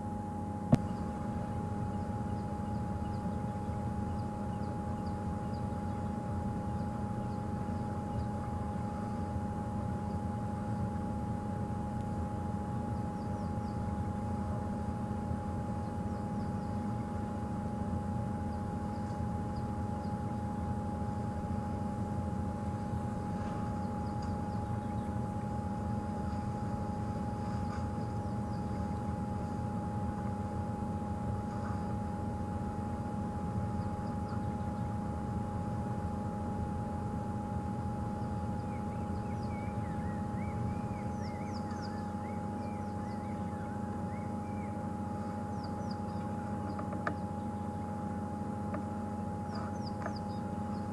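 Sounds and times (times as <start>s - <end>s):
thin whine: 0.0s - 50.9s
bird chirps: 23.5s - 25.2s, 38.6s - 44.8s, 45.5s - 47.6s, 49.5s - 50.9s.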